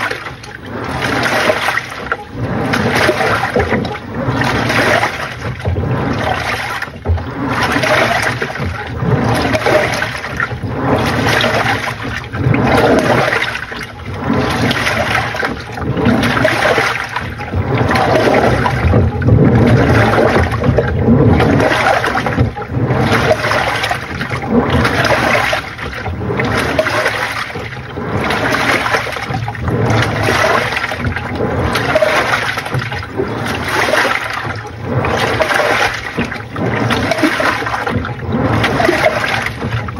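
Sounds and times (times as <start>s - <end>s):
washing machine water sloshing: 0.0s - 39.9s.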